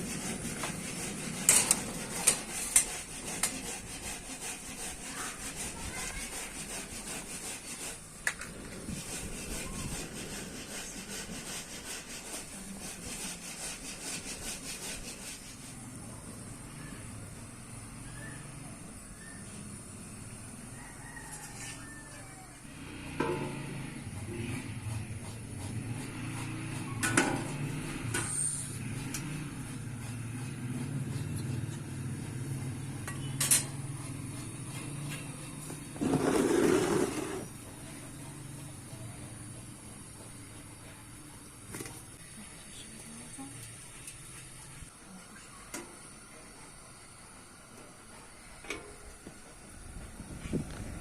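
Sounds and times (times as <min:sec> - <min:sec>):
hand tool rasping strokes: 0:00.0 - 0:16.5, 0:22.7 - 0:37.7
low mechanical hum: 0:15.0 - 0:51.0.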